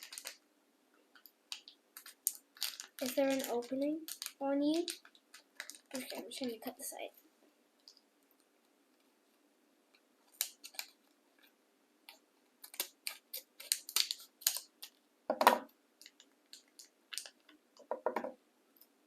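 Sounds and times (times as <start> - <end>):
scissors snipping plastic package: 1.5 - 6.2, 10.3 - 11.0, 12.6 - 14.9.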